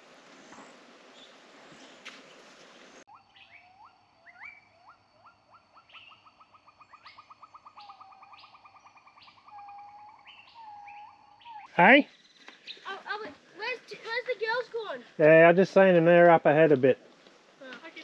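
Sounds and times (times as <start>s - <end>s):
bird whistling and trilling: 3.1s - 12.9s.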